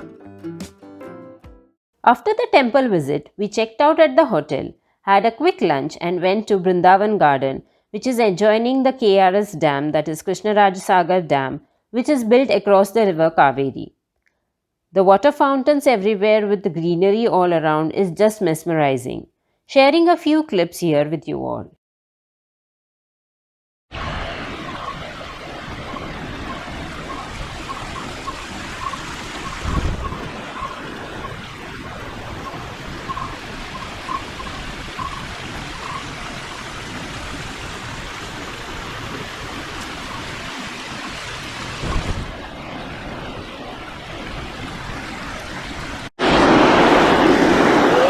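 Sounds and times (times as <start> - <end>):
fountains splashing water: 24.2 - 48.0
faint chirping: 24.7 - 36.1.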